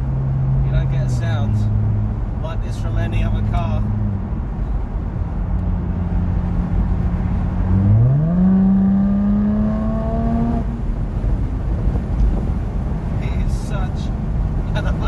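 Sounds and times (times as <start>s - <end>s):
car engine revving: 5.5s - 12.9s.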